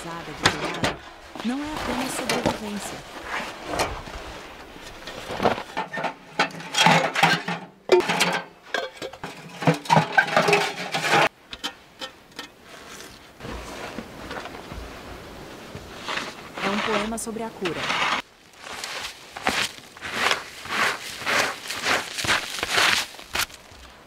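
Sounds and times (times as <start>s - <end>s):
hand tools knocking and scraping: 0.0s - 2.9s, 3.7s - 14.9s.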